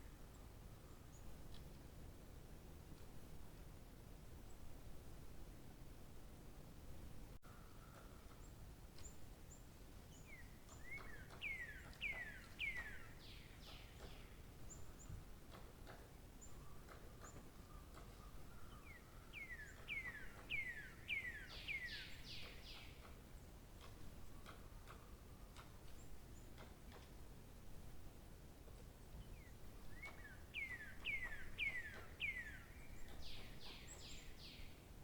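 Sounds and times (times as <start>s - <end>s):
songbird whistling song: 10.1s - 15.1s, 16.4s - 23.1s, 29.2s - 34.8s.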